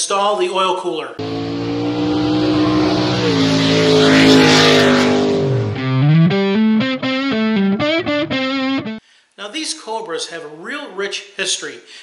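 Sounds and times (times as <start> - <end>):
car engine running hard: 1.2 - 7.9
distorted electric guitar music: 1.2 - 9.0
rising sweep: 1.2 - 9.0.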